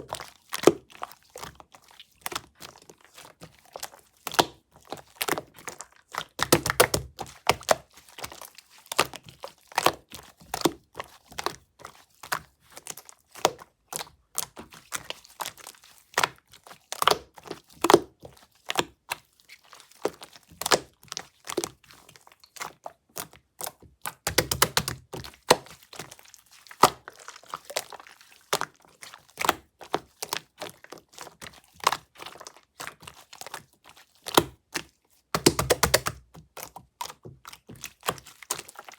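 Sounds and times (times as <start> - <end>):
slime squelching: 0.0 - 38.9
slime clicking and popping: 6.4 - 7.8, 24.1 - 25.7, 35.4 - 37.2.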